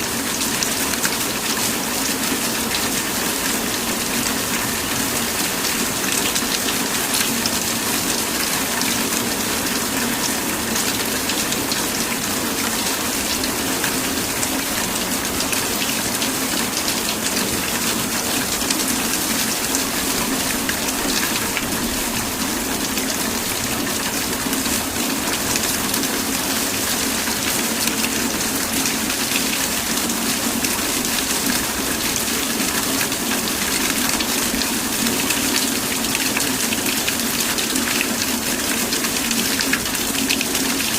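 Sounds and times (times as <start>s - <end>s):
heavy rain pattering: 0.0s - 40.9s.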